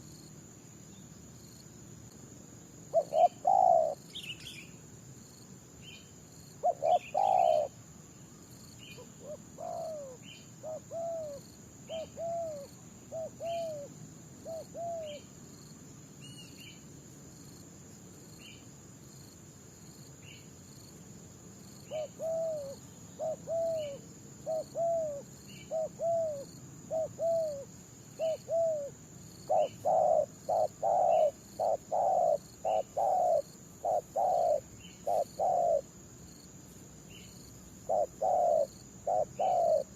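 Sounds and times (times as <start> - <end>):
high insect drone: 0.0 - 39.9
doves cooing: 2.9 - 4.0, 6.6 - 7.8, 9.0 - 15.2, 21.9 - 35.9, 37.8 - 39.9.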